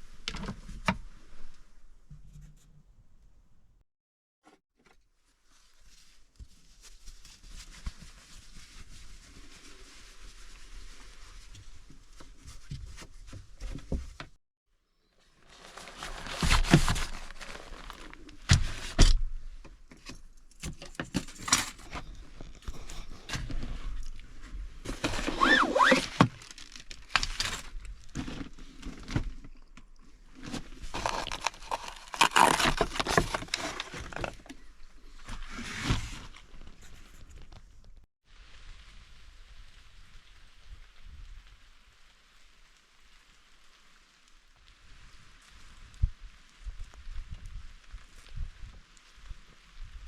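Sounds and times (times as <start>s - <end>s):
objects rustling and clattering: 15.4s - 38.1s.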